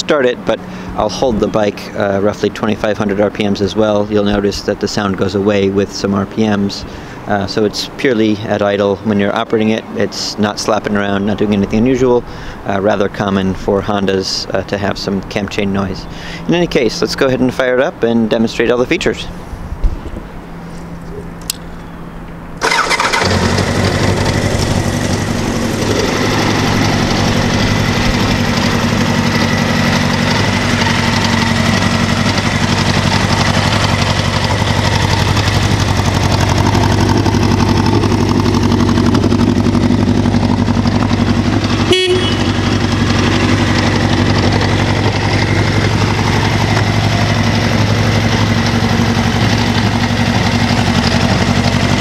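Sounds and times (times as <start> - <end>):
motorcycle engine starting and running: 0.0 - 52.0
horn beep: 41.8 - 42.8.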